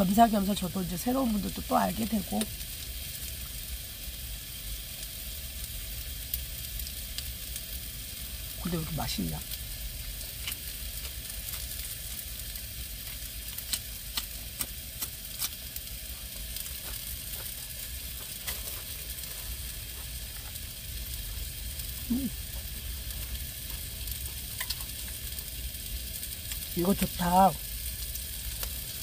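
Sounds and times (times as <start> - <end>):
beef sizzling in a pan: 0.0 - 29.0
person murmuring: 22.1 - 22.4.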